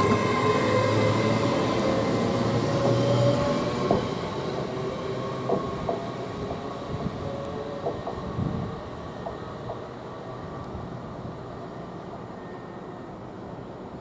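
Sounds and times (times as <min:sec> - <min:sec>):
train wheels clicking over rail joints: 0:03.8 - 0:04.8, 0:05.4 - 0:06.7, 0:07.8 - 0:08.3.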